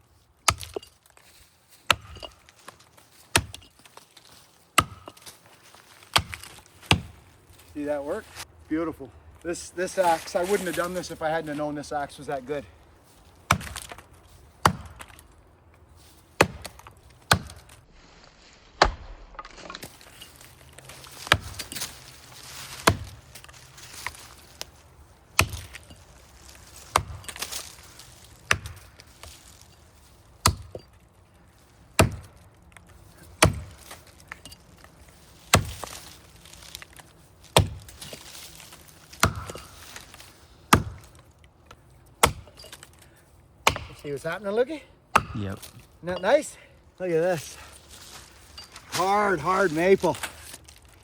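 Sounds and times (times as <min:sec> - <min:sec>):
axe chopping into tree trunk: 0:00.4 - 0:00.9, 0:01.8 - 0:02.7, 0:03.3 - 0:03.7, 0:04.8 - 0:05.4, 0:06.0 - 0:07.2, 0:13.5 - 0:15.2, 0:16.4 - 0:17.8, 0:18.8 - 0:20.2, 0:21.2 - 0:22.0, 0:22.6 - 0:23.2, 0:25.4 - 0:26.0, 0:26.9 - 0:27.8, 0:28.4 - 0:29.4, 0:30.4 - 0:30.9, 0:32.0 - 0:32.5, 0:33.2 - 0:34.5, 0:35.4 - 0:41.3, 0:42.2 - 0:43.0, 0:43.6 - 0:44.2, 0:45.1 - 0:45.9.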